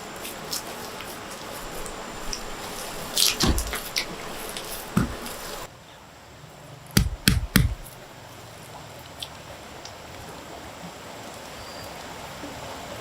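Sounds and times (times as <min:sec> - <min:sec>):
background hiss: 0:00.0 - 0:13.0
sharp knocks: 0:03.3 - 0:04.2, 0:04.9 - 0:05.6, 0:07.0 - 0:07.9.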